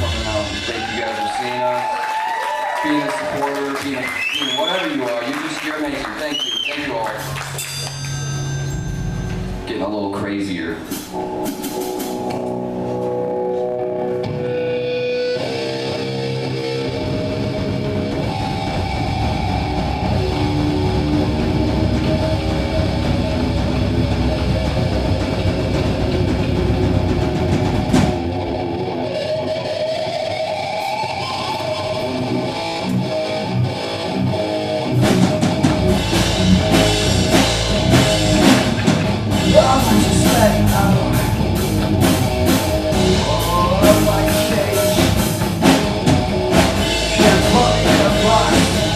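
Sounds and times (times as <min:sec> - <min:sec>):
electric guitar chords: 0:00.0 - 0:01.9, 0:07.2 - 0:09.8, 0:10.7 - 0:48.9
drums: 0:00.0 - 0:48.9
rock band playing: 0:00.0 - 0:48.9.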